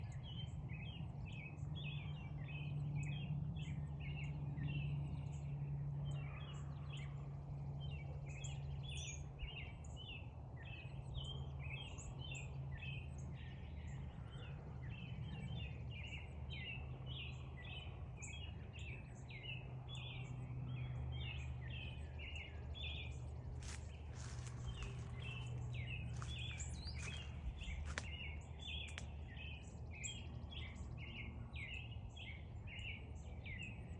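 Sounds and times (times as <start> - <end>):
steady low hum: 20.9 - 32.6.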